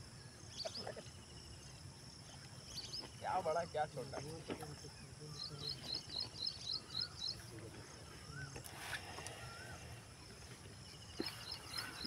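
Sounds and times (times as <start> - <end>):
birds chirping: 0.0 - 12.0
lower whistled bird notes: 4.9 - 10.2.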